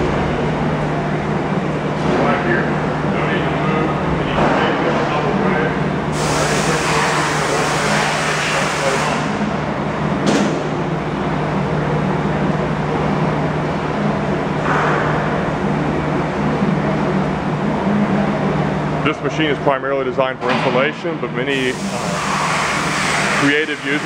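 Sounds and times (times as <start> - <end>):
low machine hum: 0.0 - 24.0
hiss: 6.2 - 9.2.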